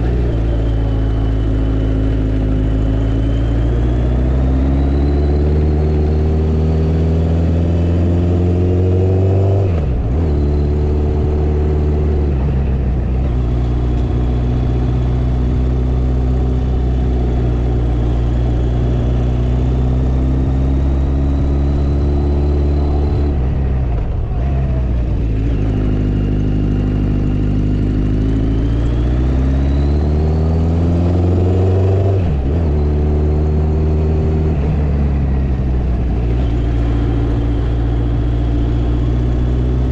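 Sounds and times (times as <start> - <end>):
motorcycle engine running under load: 9.7 - 29.8.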